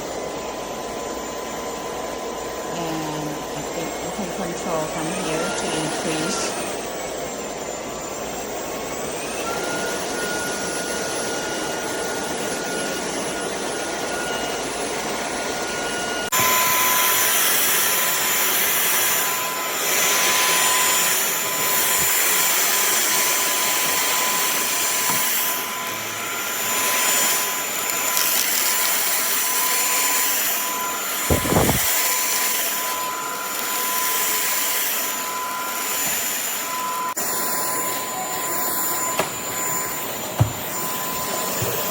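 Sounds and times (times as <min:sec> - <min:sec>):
vacuum cleaner motor whine: 0:00.0 - 0:41.9.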